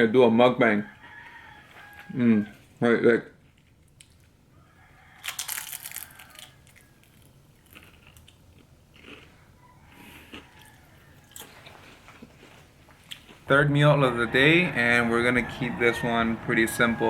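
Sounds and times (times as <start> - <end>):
chewing crunchy food: 5.2 - 13.5.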